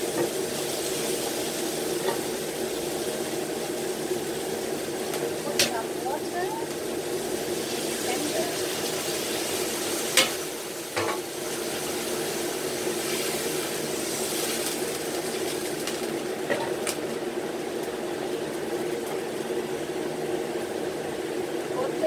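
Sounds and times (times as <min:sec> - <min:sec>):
chicken sizzling in frying pan: 0:00.0 - 0:22.0.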